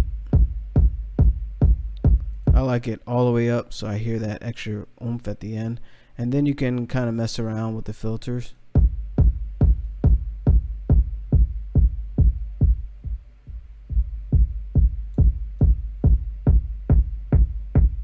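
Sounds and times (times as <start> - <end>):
electronic kick drum beat: 0.0 - 2.8, 8.7 - 18.0.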